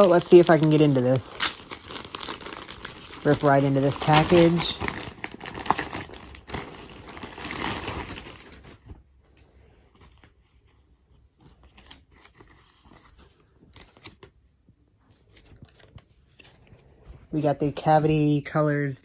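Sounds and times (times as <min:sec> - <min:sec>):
rustling of contents: 0:00.0 - 0:19.0
package being ripped open: 0:00.2 - 0:08.7.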